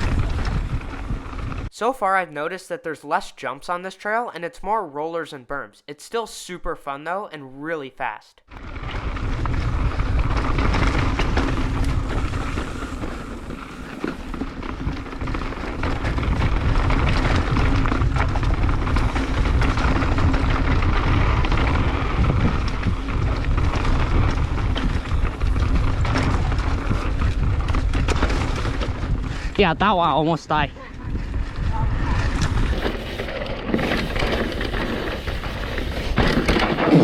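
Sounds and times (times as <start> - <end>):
tyres rolling on dirt: 0.0 - 1.7, 8.5 - 37.0
wind rushing over microphone: 0.0 - 1.7, 8.5 - 36.3
bike knocks and rattles: 8.5 - 29.5, 31.1 - 37.0.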